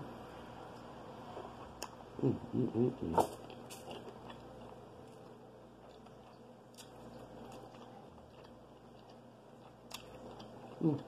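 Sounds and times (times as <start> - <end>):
chewing and wet mouth clicks: 5.8 - 11.0.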